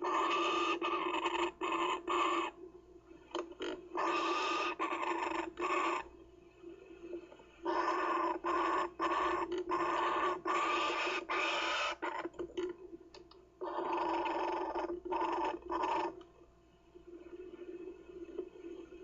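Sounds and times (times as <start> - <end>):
kookaburra chick rasping calls: 0.0 - 2.6, 3.6 - 6.1, 7.6 - 12.3, 13.6 - 16.2.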